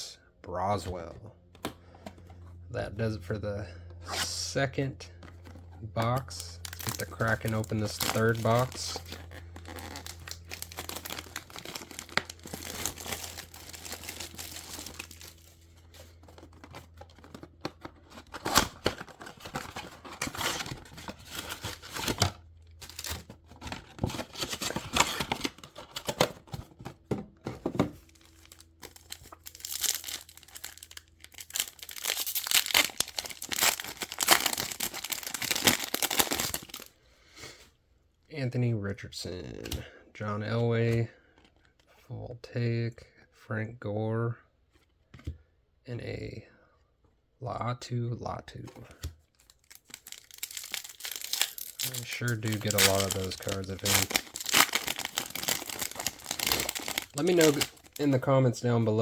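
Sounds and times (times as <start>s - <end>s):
plastic wrapping tearing and crinkling: 6.0s - 26.5s, 28.0s - 36.9s, 49.4s - 58.3s.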